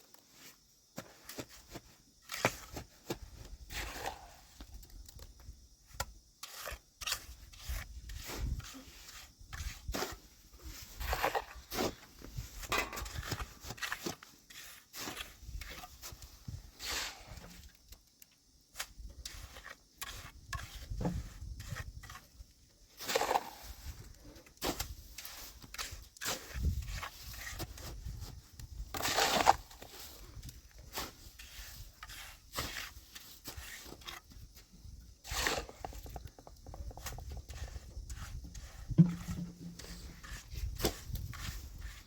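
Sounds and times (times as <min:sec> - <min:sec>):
rubbing and scraping: 0:35.3 - 0:42.0.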